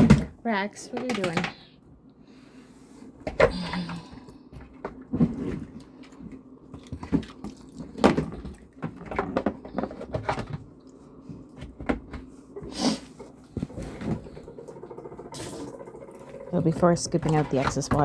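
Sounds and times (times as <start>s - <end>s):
objects knocking and clunking: 0.0s - 1.7s, 3.2s - 10.8s, 11.4s - 18.0s
objects scraping: 16.6s - 18.0s.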